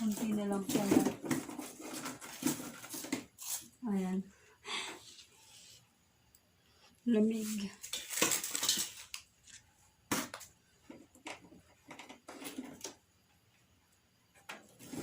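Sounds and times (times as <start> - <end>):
plastic packaging rustling: 0.0 - 3.8, 7.4 - 10.4.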